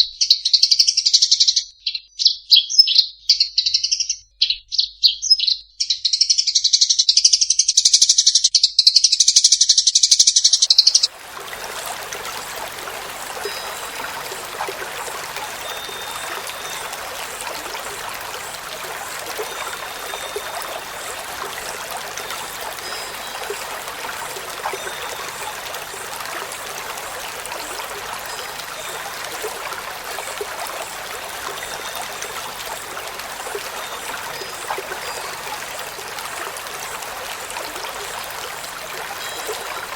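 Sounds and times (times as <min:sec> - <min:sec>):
songbird singing: 0:00.1 - 0:39.9
faint high chirps: 0:10.3 - 0:39.9
running water rushing: 0:10.5 - 0:39.9.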